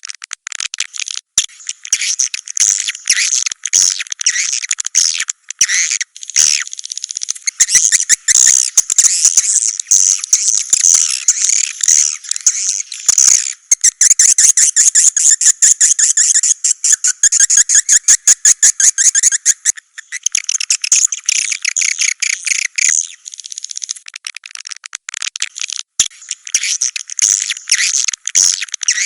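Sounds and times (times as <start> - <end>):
dry clicks: 0.0 - 17.8, 18.7 - 29.0
rapid ticking chatter: 1.4 - 29.0
swiftlet twittering chirps: 5.9 - 24.0.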